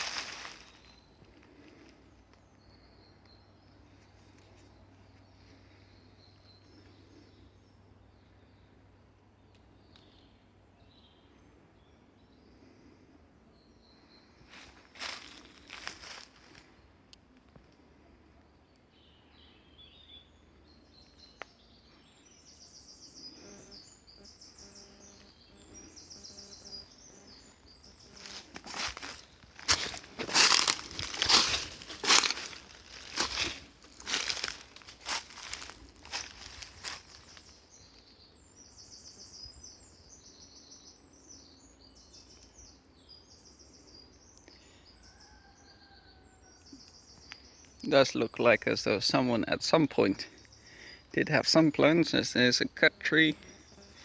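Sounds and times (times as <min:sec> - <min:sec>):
rustling crunch: 0:00.0 - 0:02.0, 0:14.5 - 0:16.7, 0:27.9 - 0:37.7
birds chirping and trilling: 0:00.0 - 0:17.0, 0:17.9 - 0:54.0.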